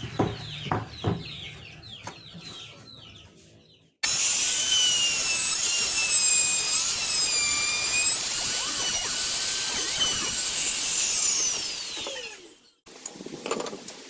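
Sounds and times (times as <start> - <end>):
table saw whining: 4.0 - 12.8.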